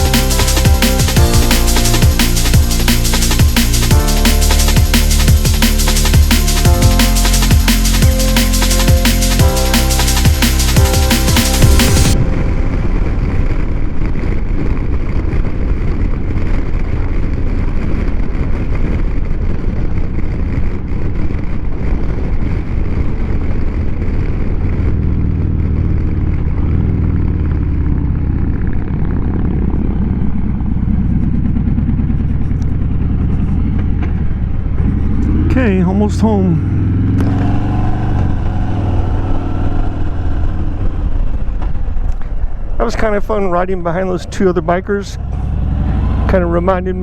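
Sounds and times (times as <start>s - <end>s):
heavy wind rush: 0.0s - 24.5s
motorcycle engine: 24.7s - 41.4s.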